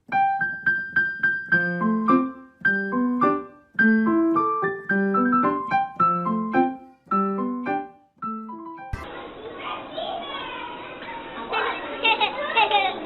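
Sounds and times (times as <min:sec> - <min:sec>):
piano playing: 0:00.0 - 0:09.4.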